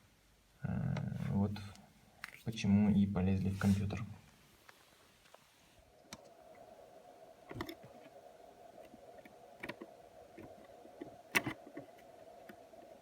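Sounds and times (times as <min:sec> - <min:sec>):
electrical equipment hum: 0:05.8 - 0:13.0.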